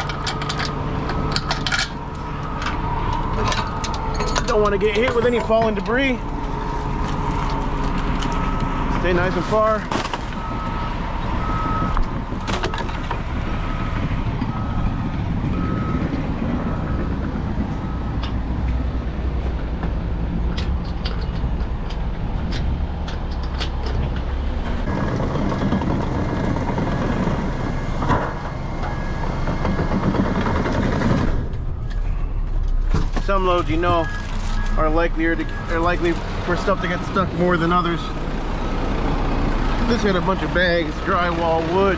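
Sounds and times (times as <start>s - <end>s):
heavy truck engine running: 0.0s - 41.9s
back-up alarm beeping: 0.1s - 4.5s, 8.2s - 9.6s, 10.4s - 19.0s, 33.3s - 38.2s
higher-pitched back-up alarm: 10.4s - 19.0s
knocks and clatters: 19.4s - 34.8s.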